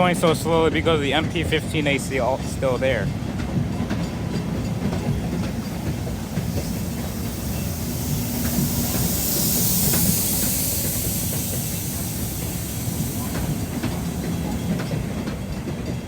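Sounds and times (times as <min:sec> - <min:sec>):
train rumbling past: 0:00.0 - 0:16.0
wheels clicking over rail joints: 0:00.0 - 0:16.0
hiss: 0:04.0 - 0:16.0.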